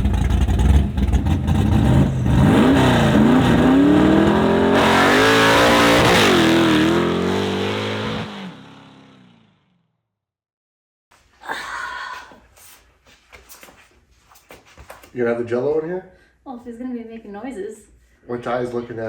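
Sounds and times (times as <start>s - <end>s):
drag car engine accelerating: 0.0s - 9.7s.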